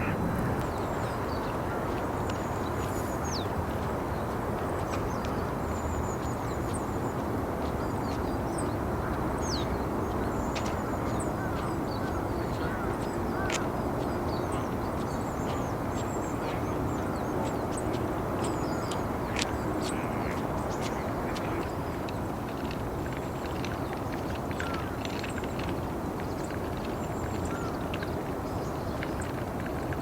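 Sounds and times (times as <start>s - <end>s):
low background rumble: 0.0s - 3.7s.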